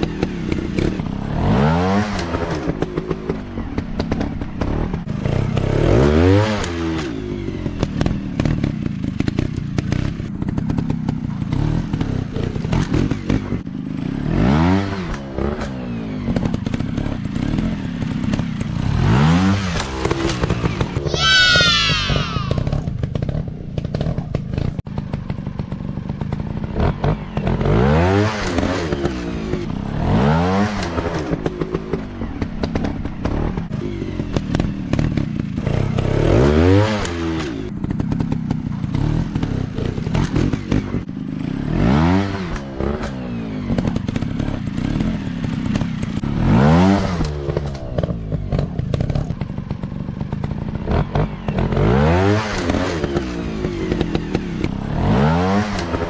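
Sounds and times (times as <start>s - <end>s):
dirt bike engine revving: 50.9s - 56.0s.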